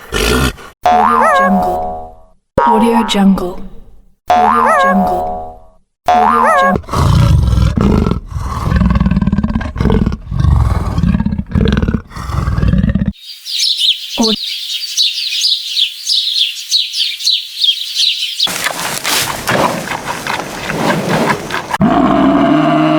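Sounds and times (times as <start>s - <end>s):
cartoon boing: 0.8s - 3.2s, 4.3s - 6.8s
big cat roaring: 6.8s - 13.1s, 19.4s - 22.9s
high rapid chirping: 13.2s - 18.6s.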